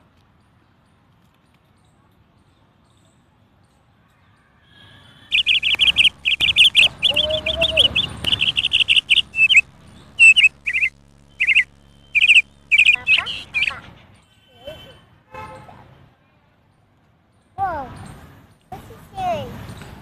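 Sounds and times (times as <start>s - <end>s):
bird chirping: 5.3s - 13.8s.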